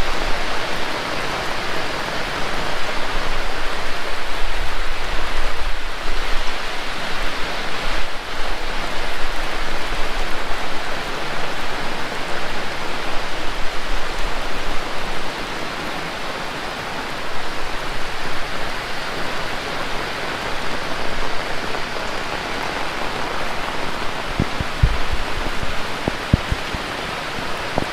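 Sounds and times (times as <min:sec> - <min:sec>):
heavy rain pouring: 0:00.0 - 0:27.9
dull low knocks: 0:24.4 - 0:26.8.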